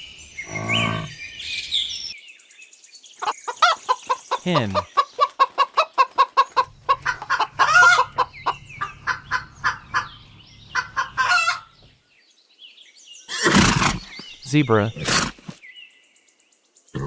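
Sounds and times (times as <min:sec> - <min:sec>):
hen squawking: 0:03.2 - 0:10.1
hen clucking: 0:03.2 - 0:11.8.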